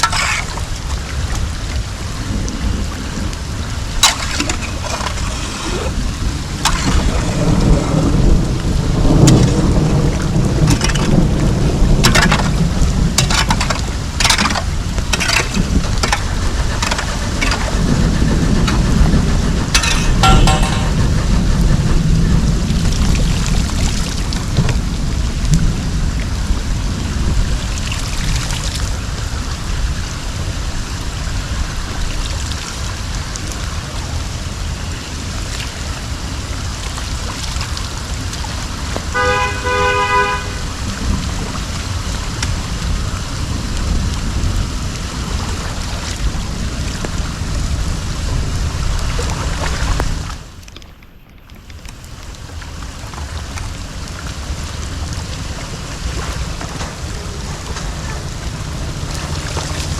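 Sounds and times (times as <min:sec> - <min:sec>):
water rushing with low rumble: 0:00.0 - 0:59.9
knocks and clicks: 0:19.7 - 0:21.2.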